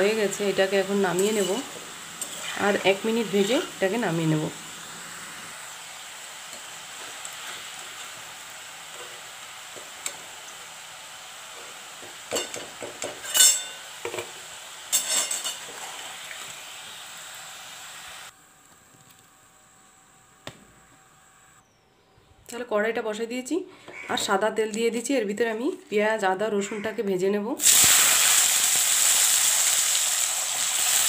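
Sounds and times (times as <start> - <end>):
deep-frying sizzle: 0.0 - 18.3, 27.6 - 31.0
steel spoon scraping pan: 13.2 - 13.9, 14.9 - 15.7.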